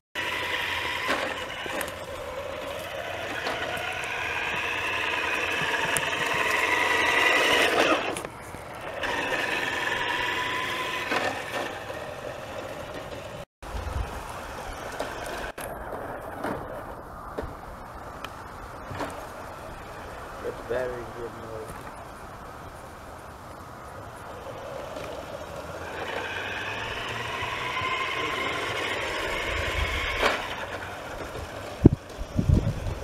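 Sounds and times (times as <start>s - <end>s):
toy truck electric motors whining: 0.2s - 16.8s, 24.2s - 33.0s.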